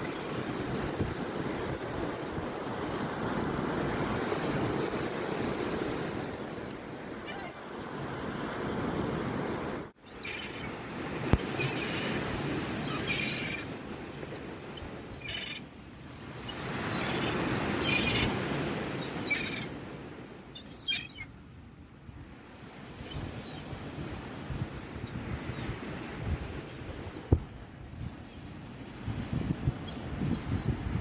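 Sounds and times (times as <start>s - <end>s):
sea surf washing: 0.0s - 20.9s
seagulls calling: 10.1s - 10.8s, 11.4s - 13.8s, 14.8s - 15.7s, 16.5s - 19.8s, 20.5s - 21.3s.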